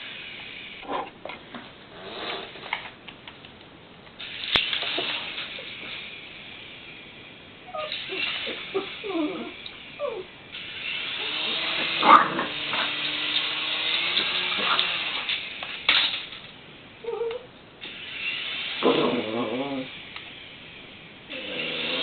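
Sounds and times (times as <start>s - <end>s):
small dog whining and yapping: 7.7s - 10.3s, 17.0s - 17.5s
toy helicopter motor whirring: 7.7s - 16.3s, 17.8s - 22.0s.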